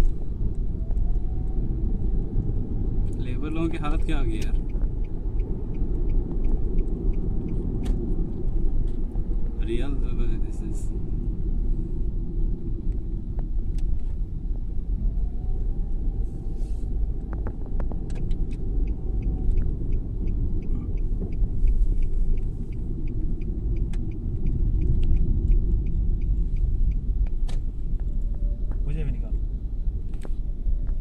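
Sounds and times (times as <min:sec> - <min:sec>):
light regular ticking: 0:02.3 - 0:10.9, 0:17.2 - 0:30.0.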